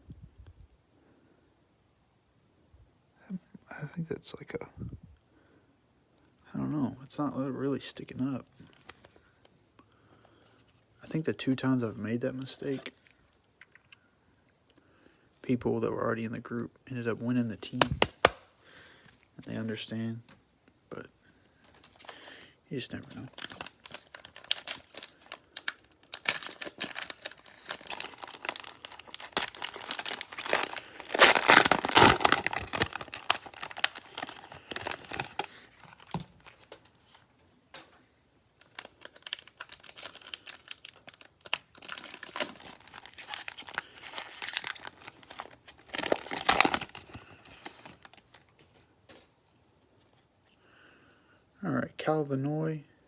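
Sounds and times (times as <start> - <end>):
cellophane wrappers crackling: 21.6 - 36.9, 38.6 - 48.5.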